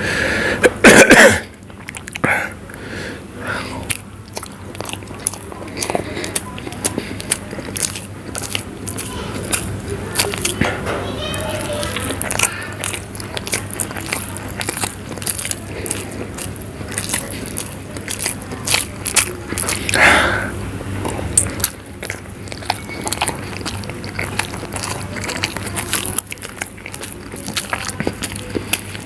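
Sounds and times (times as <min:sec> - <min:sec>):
person chewing food: 0:00.0 - 0:29.0
steady low hum: 0:00.0 - 0:29.0.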